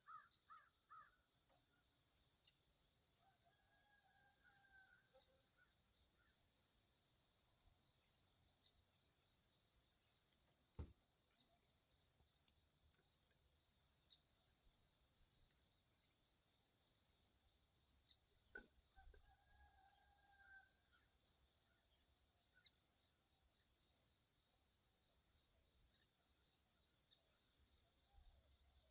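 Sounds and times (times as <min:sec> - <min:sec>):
faint high-pitched chirps: 0:08.6 - 0:19.4.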